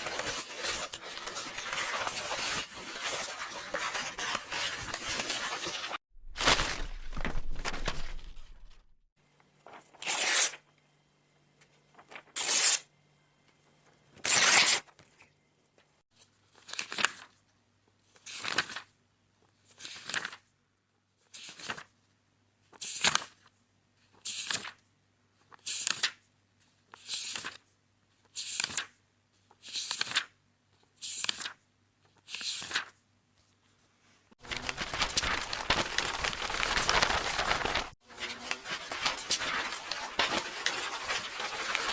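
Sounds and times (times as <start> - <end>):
book pages turning: 0.0 - 8.8, 9.5 - 10.6, 11.9 - 12.8, 19.5 - 20.5, 21.3 - 21.9, 25.4 - 27.6, 28.2 - 33.8, 34.4 - 41.9
paper ripping: 0.0 - 8.8, 9.7 - 10.6, 12.0 - 12.8, 14.2 - 14.8, 34.4 - 41.9
paper rustling and tearing: 0.0 - 8.8, 9.7 - 10.6, 12.0 - 12.8, 14.2 - 14.8, 34.4 - 41.9.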